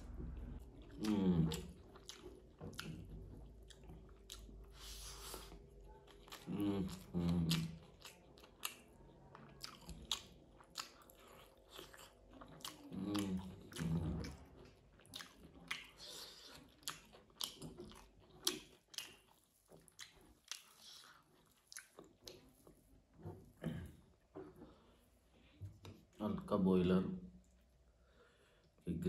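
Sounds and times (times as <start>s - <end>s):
low mouth sound: 0.0s - 1.8s
person chewing food: 0.0s - 26.2s.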